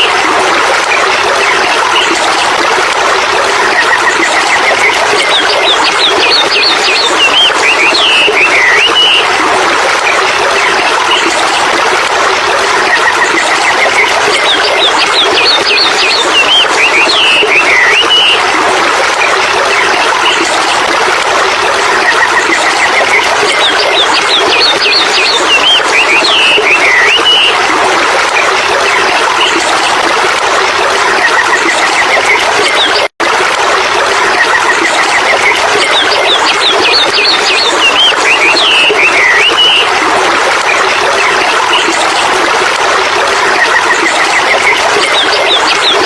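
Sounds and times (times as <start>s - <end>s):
running water: 0.0s - 46.0s
birds chirping: 3.9s - 9.4s, 13.3s - 18.4s, 22.8s - 27.6s, 35.3s - 40.0s.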